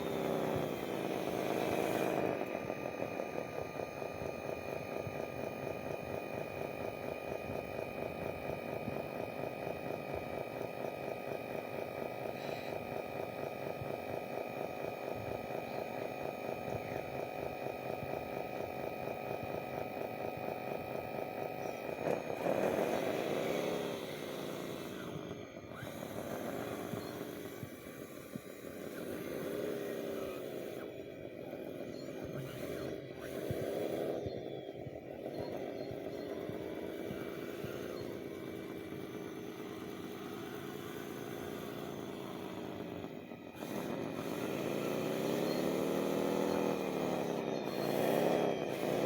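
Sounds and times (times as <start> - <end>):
model motor whirring: 0.0 - 49.0.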